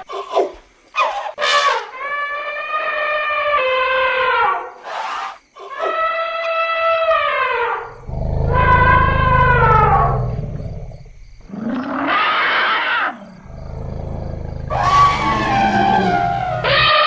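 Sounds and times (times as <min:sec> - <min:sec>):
elephant moaning call: 0:13.2 - 0:17.0
elephant trumpeting: 0:14.7 - 0:17.0.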